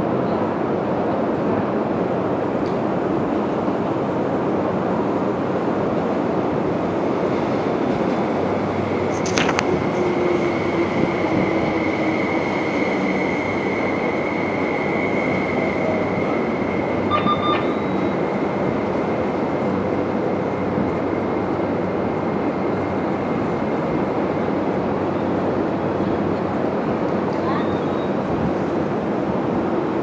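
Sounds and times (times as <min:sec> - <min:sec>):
train wheels rumbling on rails: 0:00.0 - 0:30.0
falling whine: 0:06.2 - 0:25.1
high tone: 0:11.9 - 0:20.5
short beep: 0:16.9 - 0:18.3.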